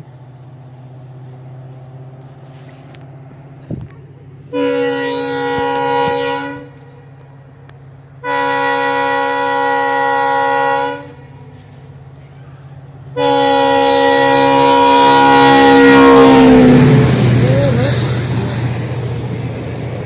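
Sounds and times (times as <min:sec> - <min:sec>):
train rumbling: 0:00.0 - 0:20.0
train horn blasts: 0:04.4 - 0:07.2, 0:08.2 - 0:11.7, 0:13.1 - 0:18.8.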